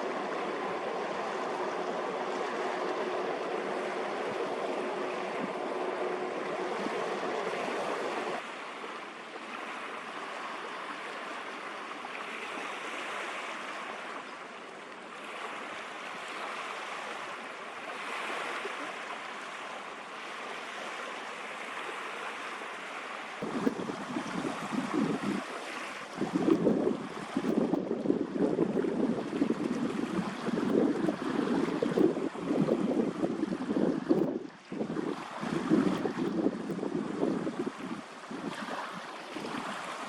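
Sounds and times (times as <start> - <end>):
faint steady hum: 0.0 - 40.0
waves and rushing water: 0.0 - 40.0
wind on microphone: 23.4 - 40.0.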